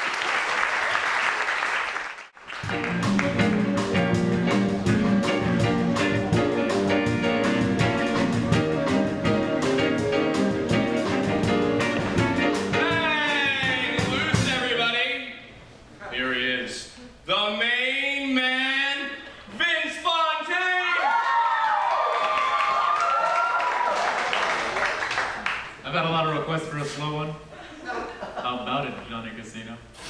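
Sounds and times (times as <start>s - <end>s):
audience applauding: 0.0s - 4.0s, 21.0s - 25.8s
live band playing upbeat instrumental: 2.6s - 14.8s.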